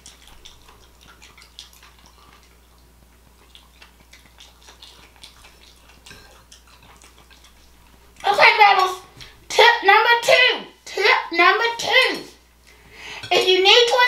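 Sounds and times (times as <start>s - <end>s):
wet mouth clicks and smacks: 0.0s - 8.0s
person chewing food: 0.0s - 8.3s.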